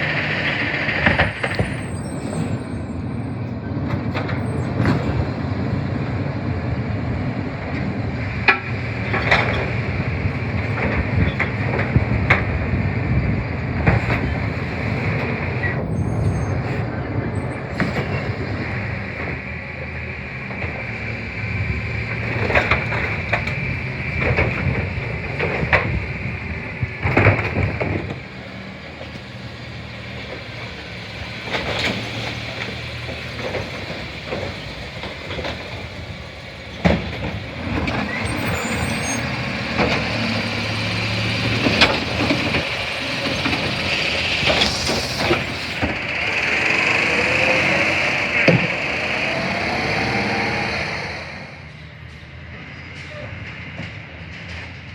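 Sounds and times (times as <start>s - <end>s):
garbage truck engine: 0.0s - 54.9s.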